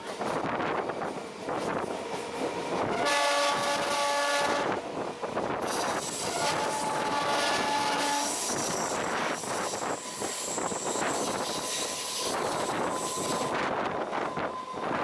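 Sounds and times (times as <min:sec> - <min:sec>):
train wheels on track: 0:00.0 - 0:15.0
train horn: 0:02.8 - 0:04.8, 0:06.2 - 0:08.8.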